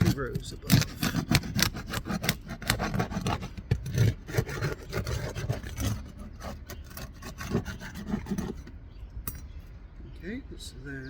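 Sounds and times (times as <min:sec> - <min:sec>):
shingles scraping and crackling: 0:00.0 - 0:08.7.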